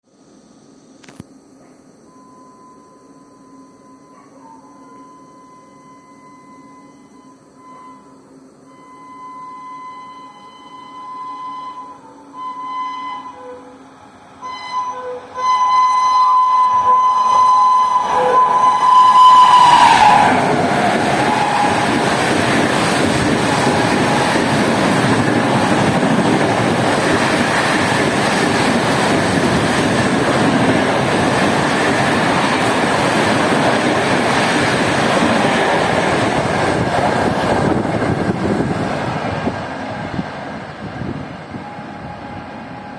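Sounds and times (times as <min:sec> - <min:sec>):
train horn: 0:08.7 - 0:22.3, 0:23.1 - 0:26.1, 0:41.4 - 0:42.9
train wheels rushing and rattling: 0:16.7 - 0:42.9.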